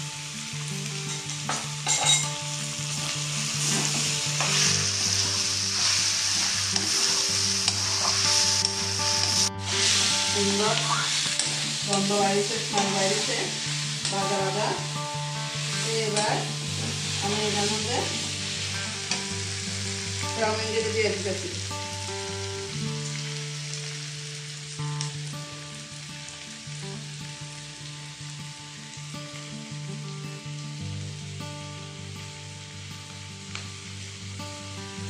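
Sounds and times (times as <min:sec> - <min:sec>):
food sizzling in a pan: 0:00.0 - 0:35.0
metal ladle scraping a pan: 0:03.6 - 0:11.7.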